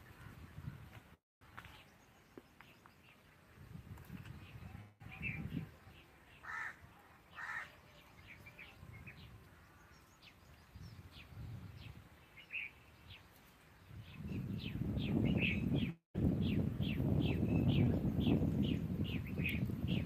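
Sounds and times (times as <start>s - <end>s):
small birds chirping: 1.5s - 20.0s
loud bird calls: 5.1s - 10.4s.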